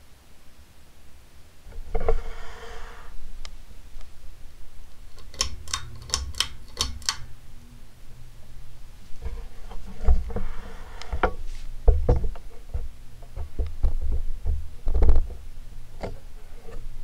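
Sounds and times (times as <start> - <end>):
fan motor low hum: 0.0 - 17.0
pull-chain switch clicks: 5.1 - 7.3.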